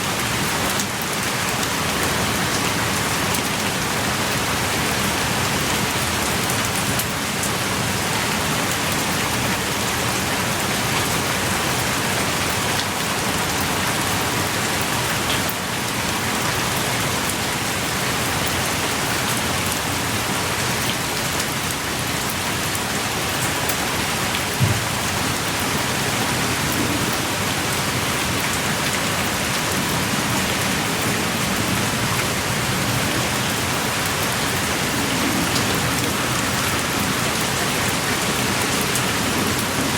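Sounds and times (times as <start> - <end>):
pouring rain: 0.0 - 39.9
loud tap: 24.6 - 24.9.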